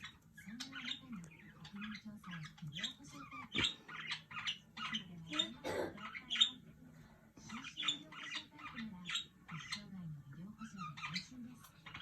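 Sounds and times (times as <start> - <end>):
budgerigars chirping and squawking: 0.0 - 6.8, 7.4 - 12.0.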